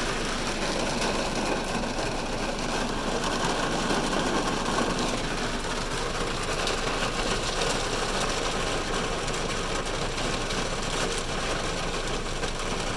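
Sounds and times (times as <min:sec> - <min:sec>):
heavy rain on car roof: 0:00.0 - 0:12.9.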